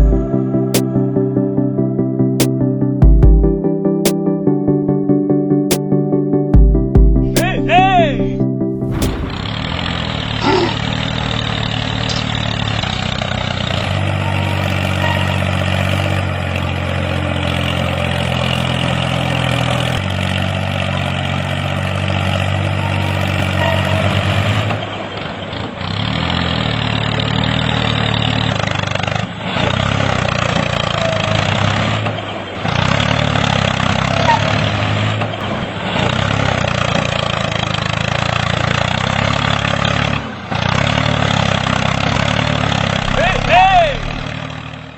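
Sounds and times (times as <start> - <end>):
small tractor engine running: 8.9 - 44.9.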